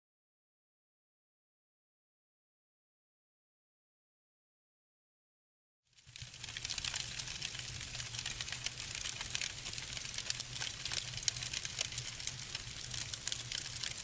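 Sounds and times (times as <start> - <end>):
firewood crackling: 6.0 - 14.0.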